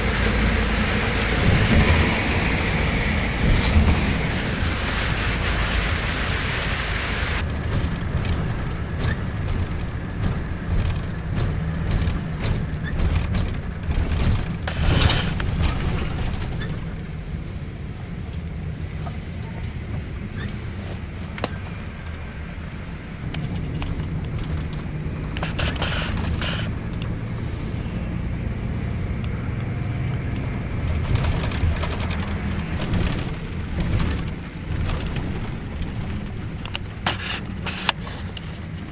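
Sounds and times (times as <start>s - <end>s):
knocks and rattles: 0.0s - 6.3s, 7.4s - 17.2s, 23.2s - 28.0s, 29.6s - 38.9s
rain hiss on bodywork: 0.0s - 7.4s, 25.4s - 26.8s, 37.1s - 38.7s
bus engine rumble inside cabin: 0.0s - 38.9s.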